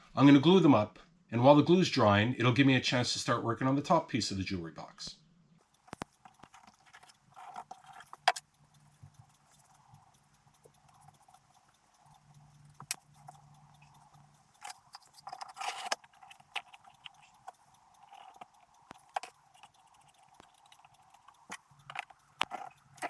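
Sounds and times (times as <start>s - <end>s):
scraping rustle: 5.6s - 23.0s
wooden parts clicking and knocking: 5.6s - 23.0s.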